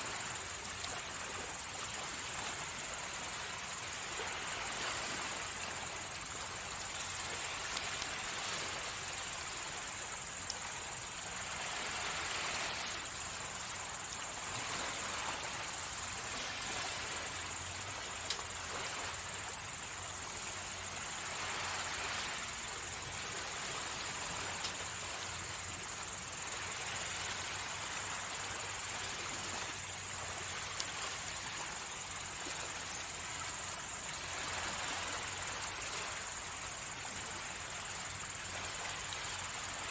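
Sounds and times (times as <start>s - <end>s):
small waves washing on beach: 0.0s - 39.9s
campfire popping: 18.2s - 18.6s.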